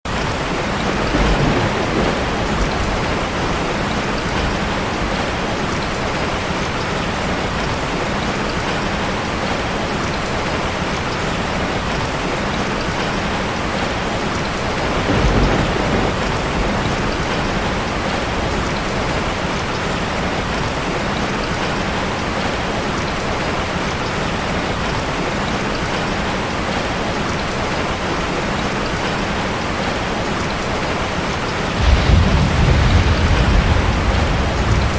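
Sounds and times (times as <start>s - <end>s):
heavy rain: 0.0s - 34.9s
low thunder rumbles: 0.2s - 6.4s, 13.7s - 20.2s, 31.7s - 34.9s.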